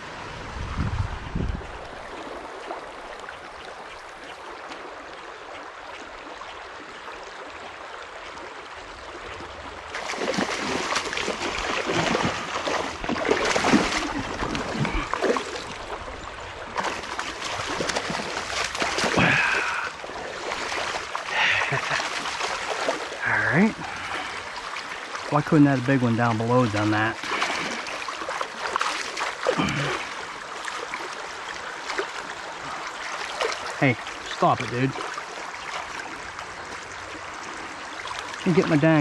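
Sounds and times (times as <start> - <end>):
creek water running: 0.0 - 39.0
loud irregular splashing: 9.9 - 16.0, 16.7 - 33.8.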